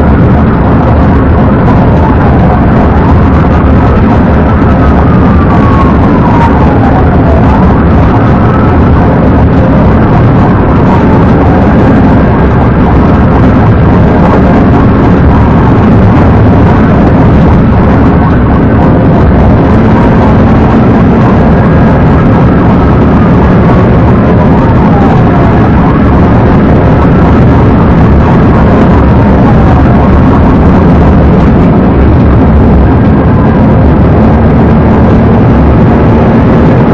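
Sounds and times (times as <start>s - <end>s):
faint siren wailing: 0.0s - 36.9s
road and engine noise: 0.0s - 36.9s.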